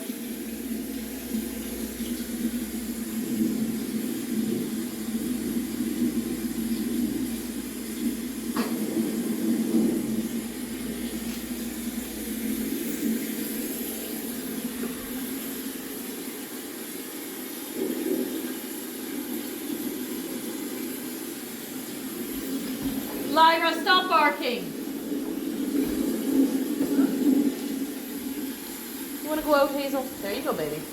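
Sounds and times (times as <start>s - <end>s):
rain-like rushing hiss: 0.0s - 30.9s.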